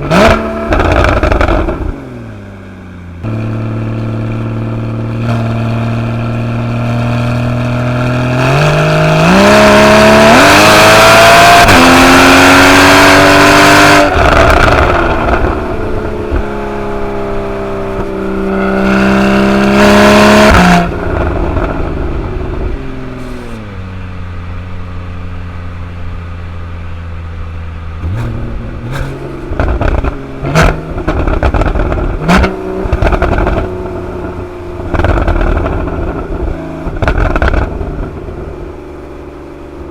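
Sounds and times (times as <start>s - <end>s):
sports car engine accelerating: 0.0s - 39.9s
exhaust cracks and pops: 28.2s - 33.7s, 34.9s - 36.3s, 36.9s - 37.8s.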